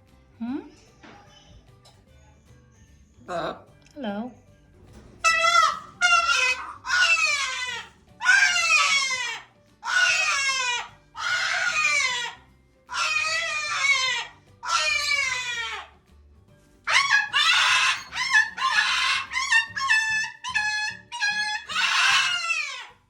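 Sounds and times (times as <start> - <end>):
parrot screeching: 5.2 - 16.0, 16.9 - 23.0.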